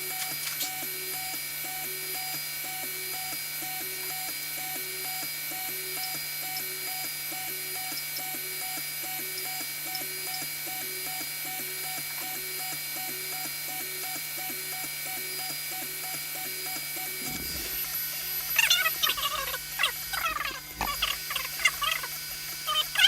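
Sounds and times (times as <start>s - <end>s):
steady low hum: 17.0s - 23.0s
stepper motors whining: 17.0s - 23.0s.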